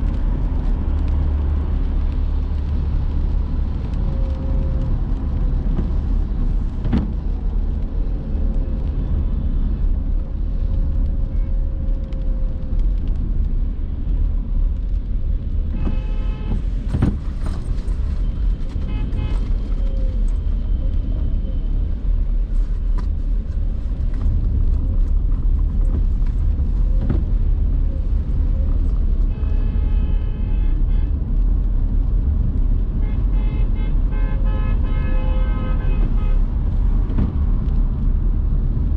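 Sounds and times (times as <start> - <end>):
road and engine rumble: 0.0 - 38.9
car horns tooting: 18.9 - 19.5, 33.0 - 36.4.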